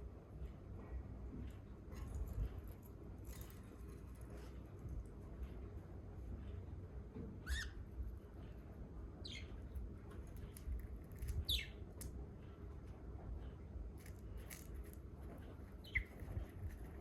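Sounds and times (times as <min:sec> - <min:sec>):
budgie chicks calling: 0:15.8 - 0:16.2.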